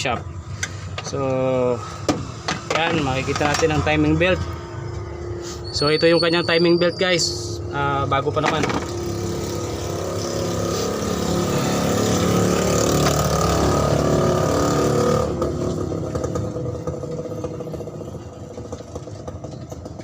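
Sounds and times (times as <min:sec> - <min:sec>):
motor vehicle engine running: 0:08.4 - 0:20.0.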